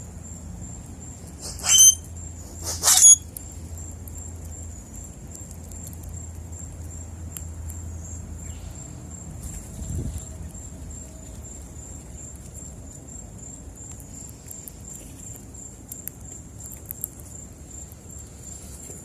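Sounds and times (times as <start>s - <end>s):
high pulsing insect trill: 0.0s - 3.3s
harsh bird calls: 1.3s - 3.2s.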